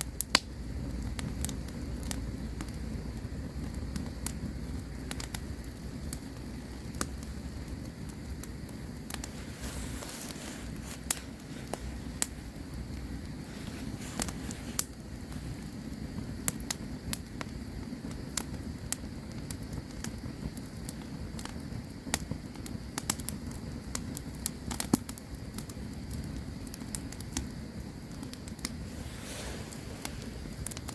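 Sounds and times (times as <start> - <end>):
campfire crackling and popping: 0.0 - 30.9.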